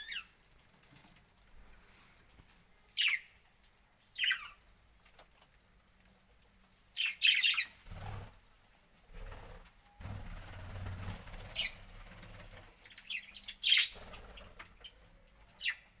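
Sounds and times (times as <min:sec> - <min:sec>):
parrot chirping: 0:07.0 - 0:07.8, 0:11.4 - 0:11.9, 0:12.8 - 0:14.2
wings flapping: 0:07.8 - 0:08.4, 0:09.1 - 0:12.9, 0:13.8 - 0:14.9.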